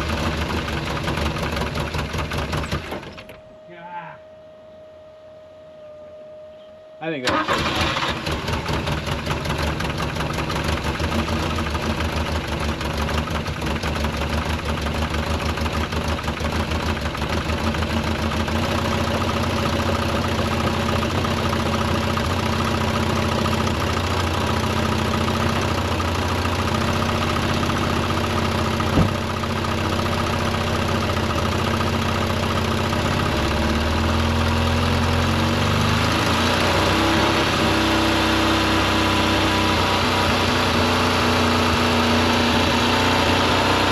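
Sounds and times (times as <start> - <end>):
car engine idling: 0.0 - 3.7, 7.3 - 35.5.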